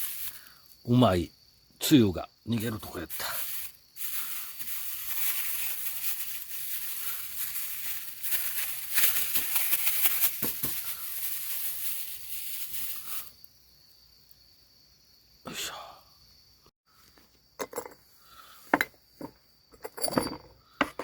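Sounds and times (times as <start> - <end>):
mushrooms sizzling on a grill: 0.0 - 1.2, 2.5 - 14.2.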